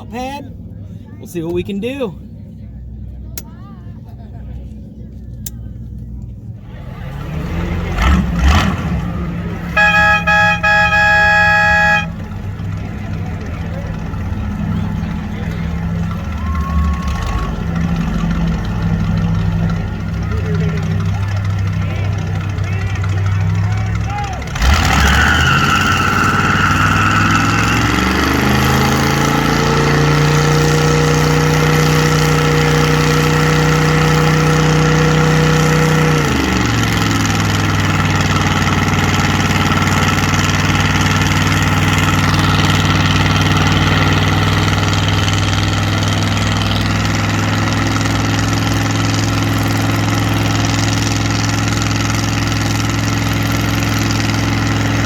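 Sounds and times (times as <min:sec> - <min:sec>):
car engine revving: 0:04.2 - 0:55.0.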